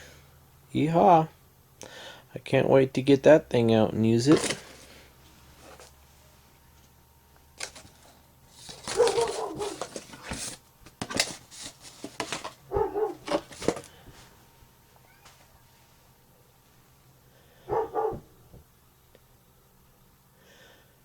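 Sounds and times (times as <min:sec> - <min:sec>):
dog barking: 0:08.9 - 0:09.8, 0:12.7 - 0:13.4, 0:17.7 - 0:18.4.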